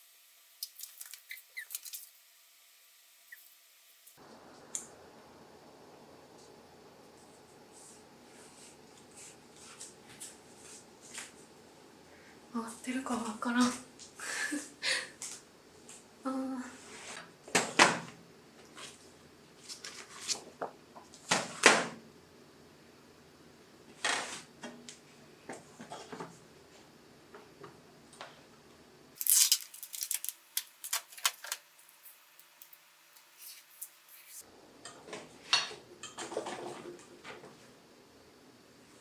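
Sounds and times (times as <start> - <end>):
objects being handled: 0.6 - 2.2, 29.2 - 34.4.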